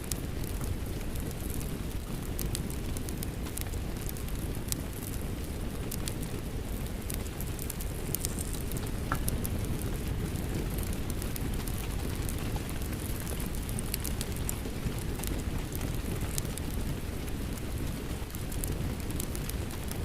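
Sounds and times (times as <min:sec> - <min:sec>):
steady rain: 0:00.0 - 0:20.0
wood fire crackling and popping: 0:00.0 - 0:20.0.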